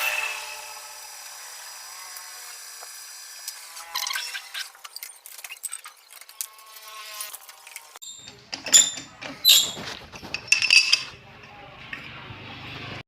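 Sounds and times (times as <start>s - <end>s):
metal parts clinking: 7.2s - 11.2s.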